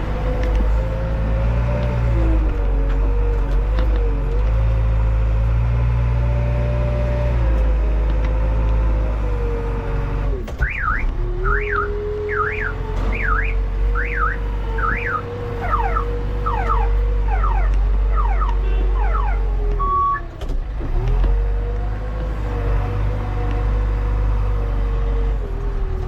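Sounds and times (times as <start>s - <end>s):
heavy machinery diesel engine: 0.0s - 26.0s
electronic warbling alarm: 10.7s - 20.3s.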